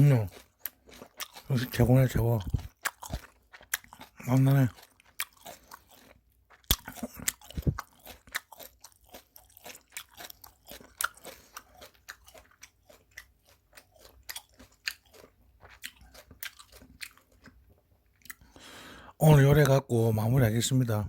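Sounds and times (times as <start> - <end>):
person chewing crunchily: 0.0 - 19.0.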